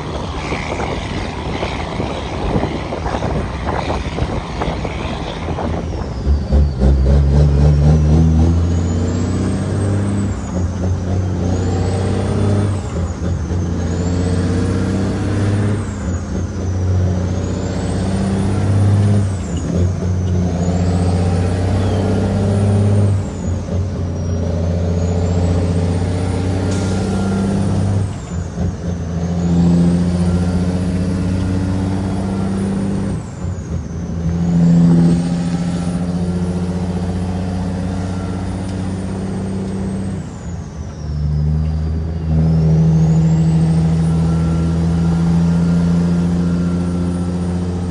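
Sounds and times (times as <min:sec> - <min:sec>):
truck diesel engine under load: 0:00.0 - 0:47.9.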